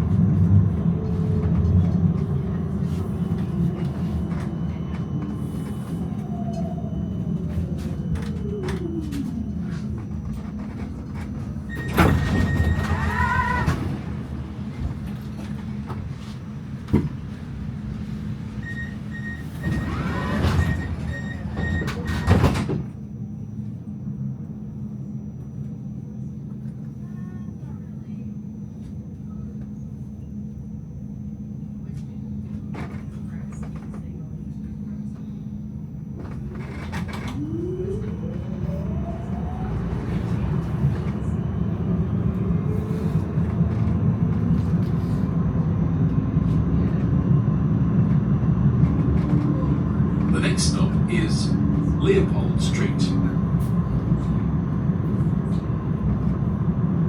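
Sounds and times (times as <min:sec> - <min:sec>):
low running rumble: 0:00.0 - 0:57.0
tram electrical hum: 0:00.0 - 0:57.0
sliding doors: 0:10.4 - 0:22.8
door warning beeps: 0:11.6 - 0:13.1, 0:18.6 - 0:22.8.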